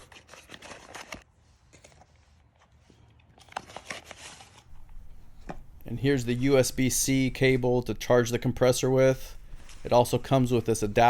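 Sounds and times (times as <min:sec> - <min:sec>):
packaging rustling and crinkling: 0:00.0 - 0:05.5.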